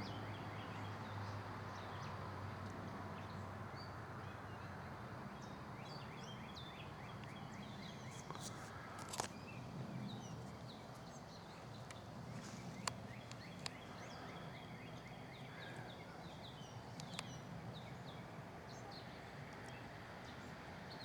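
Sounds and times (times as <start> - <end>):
faint outdoor hum: 0.0 - 21.0
songbirds chirping: 0.0 - 21.0.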